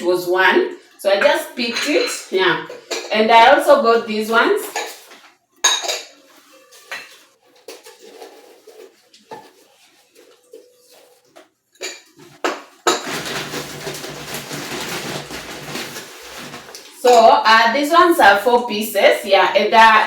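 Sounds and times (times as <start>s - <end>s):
ceramic bowls clinking: 1.3s - 17.4s.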